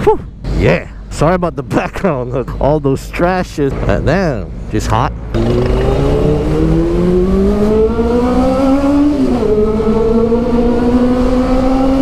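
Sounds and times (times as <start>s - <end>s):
motorcycle engine accelerating: 5.2s - 12.0s.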